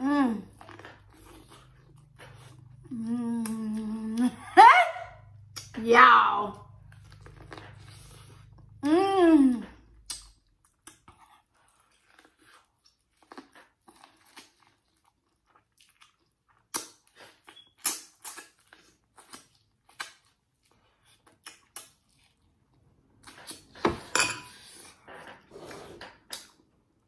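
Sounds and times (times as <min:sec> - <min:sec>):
chewing and biting corn: 0:06.8 - 0:08.8, 0:10.0 - 0:23.7.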